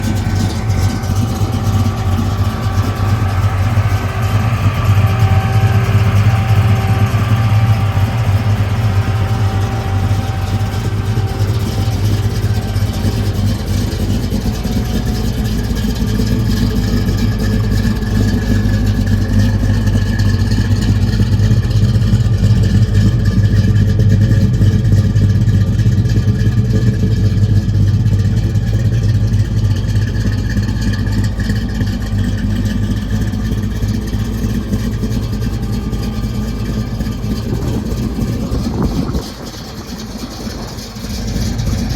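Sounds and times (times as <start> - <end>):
car engine running steadily: 0.0 - 41.9.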